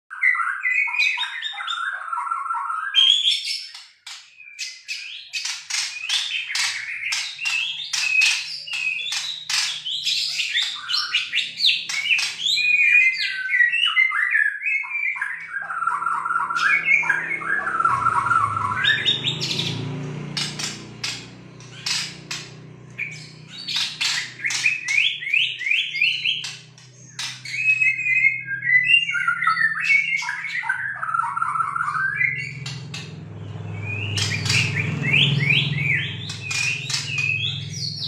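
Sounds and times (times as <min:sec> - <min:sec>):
bird singing whistled phrases: 0:06.9 - 0:19.7, 0:27.2 - 0:32.7.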